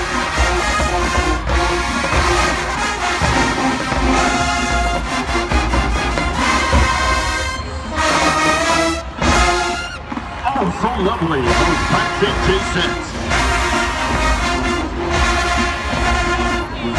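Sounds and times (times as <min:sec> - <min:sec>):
brass section sustained chords: 0:00.0 - 0:16.9
heavy bass drum beat: 0:11.0 - 0:16.4.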